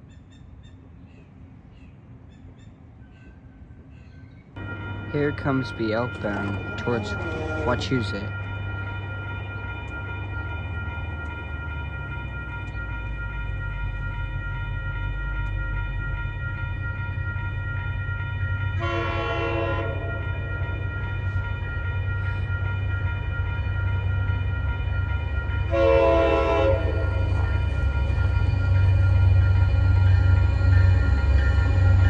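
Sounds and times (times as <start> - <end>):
low train rumble: 0.0 - 32.0
train horn blasts: 4.6 - 8.2, 18.7 - 20.5, 25.6 - 27.7
crossing signal ringing: 4.6 - 32.0.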